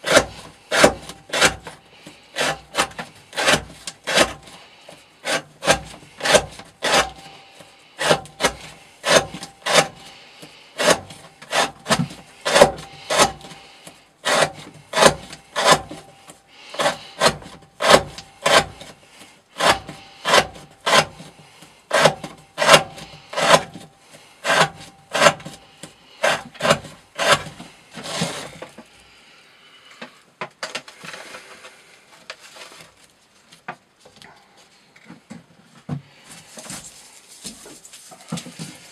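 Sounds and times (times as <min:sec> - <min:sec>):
knife cutting rope on wood: 0:00.0 - 0:28.9
faint rustling: 0:30.8 - 0:38.9.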